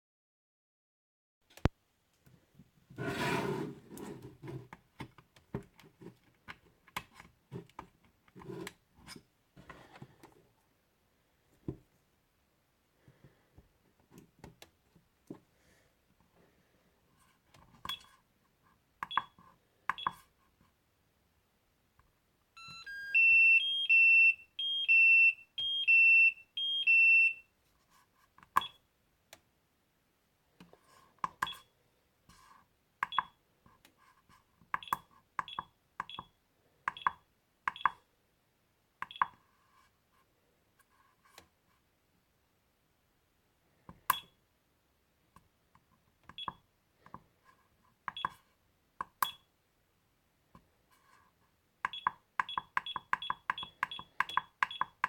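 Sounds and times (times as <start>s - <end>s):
charger alarm beeping: 22.6s - 27.4s
charger button beeps: 22.6s - 27.4s.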